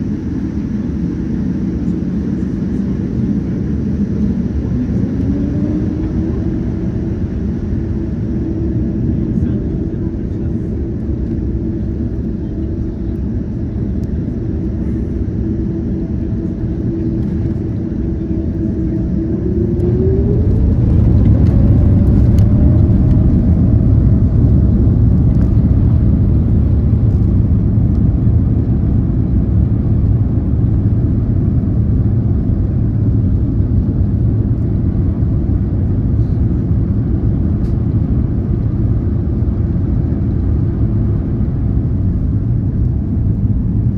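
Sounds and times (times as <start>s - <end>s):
loud engine rumble: 0.0s - 43.9s
jet engines spooling up: 14.8s - 27.3s.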